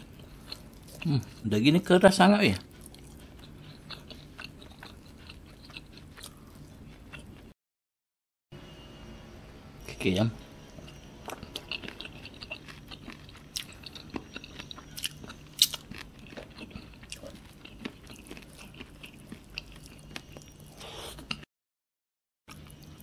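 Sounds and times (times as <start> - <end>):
wet chewing and mouth smacks: 2.6 - 7.5, 10.9 - 21.4.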